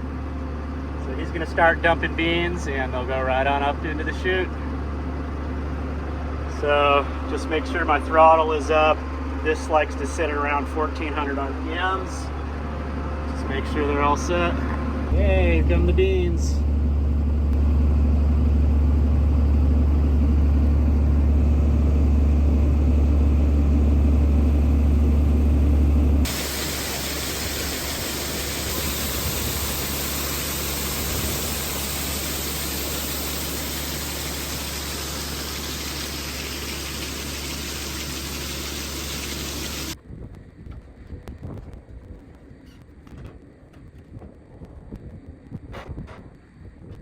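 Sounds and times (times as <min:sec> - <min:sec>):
tractor engine running: 0:00.0 - 0:40.0
steady even hiss: 0:26.3 - 0:40.0.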